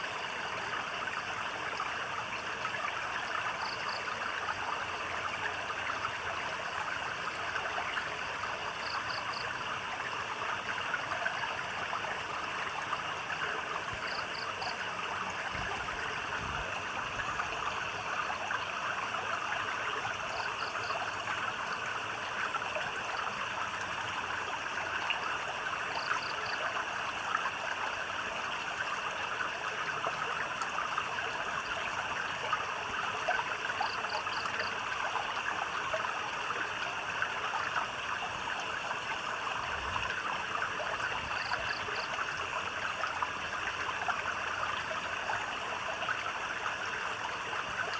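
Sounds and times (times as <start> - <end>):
insect chorus: 0.0 - 47.9
stream water babbling: 0.0 - 47.9.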